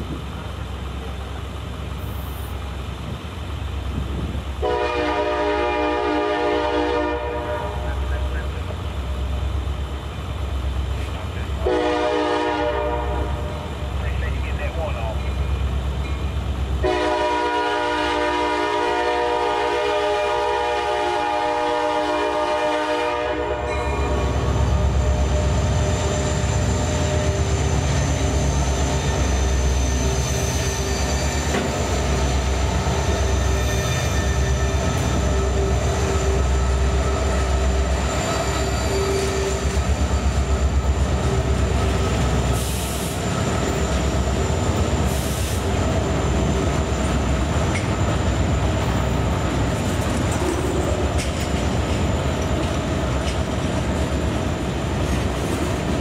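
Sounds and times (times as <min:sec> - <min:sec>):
diesel locomotive engine rumble: 0:00.0 - 0:56.0
wheel squeal on rails: 0:23.7 - 0:53.4.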